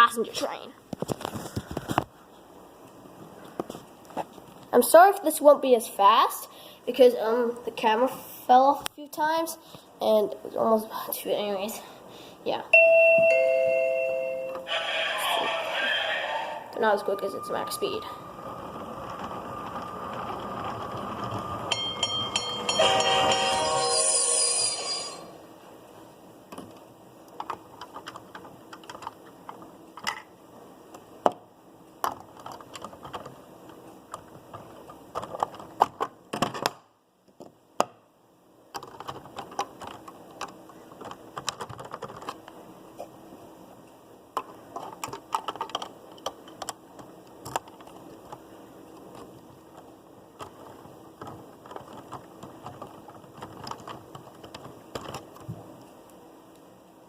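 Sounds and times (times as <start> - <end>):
faint steady hum: 0.0 - 57.0
toy train rattling on track: 19.6 - 25.1.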